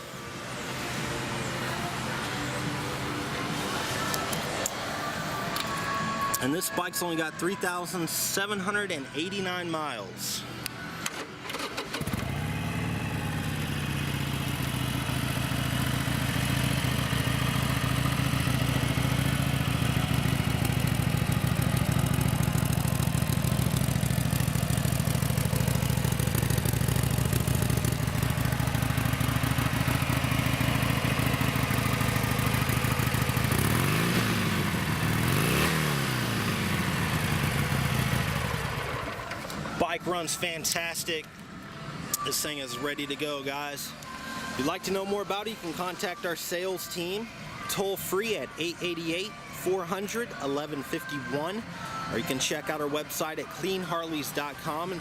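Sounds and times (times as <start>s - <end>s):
motorcycle throttle revving: 11.6s - 39.0s
motorcycle engine idling: 12.0s - 39.8s.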